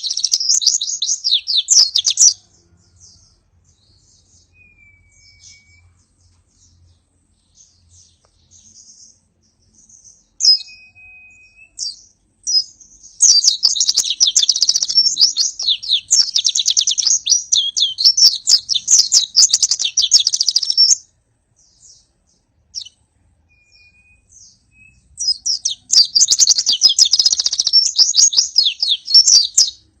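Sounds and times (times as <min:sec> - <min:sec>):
fast high bird twittering: 0:00.0 - 0:02.4, 0:10.4 - 0:21.0, 0:23.7 - 0:29.8
bird short calls and whistles: 0:10.4 - 0:12.0.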